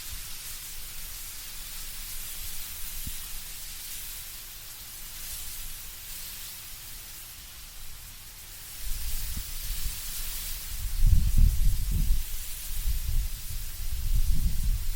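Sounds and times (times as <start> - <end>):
wind rustling leaves: 0.0 - 14.9.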